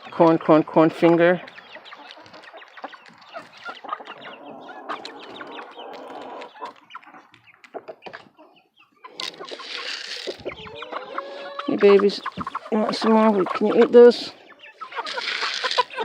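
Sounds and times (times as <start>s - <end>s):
chickens clucking softly: 0.0s - 16.0s
rustling noise: 9.2s - 10.7s.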